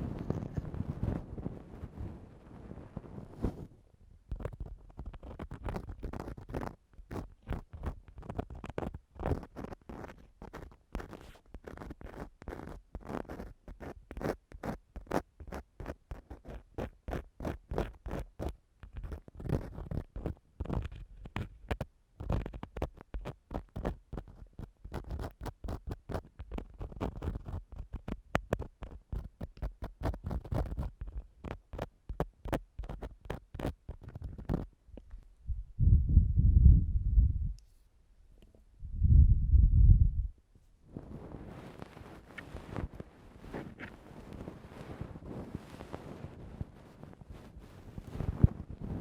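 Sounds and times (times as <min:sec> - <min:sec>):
tool scratching a microphone: 0:00.0 - 0:02.2, 0:03.0 - 0:03.7, 0:04.3 - 0:34.7, 0:40.9 - 0:49.0
microphone handling rumbles: 0:34.2 - 0:37.6, 0:38.8 - 0:40.3, 0:40.9 - 0:49.0.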